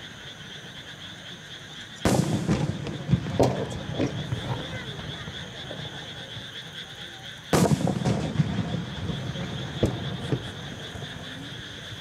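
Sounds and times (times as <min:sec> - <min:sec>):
small firework pops: 0:02.0 - 0:05.0, 0:07.5 - 0:11.2
firework shell booming: 0:02.0 - 0:05.1, 0:07.5 - 0:11.3.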